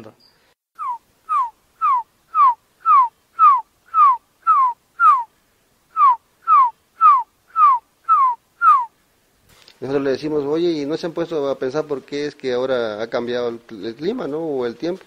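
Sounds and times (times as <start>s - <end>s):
bird whistling downward notes: 0.8s - 5.3s, 5.9s - 8.9s.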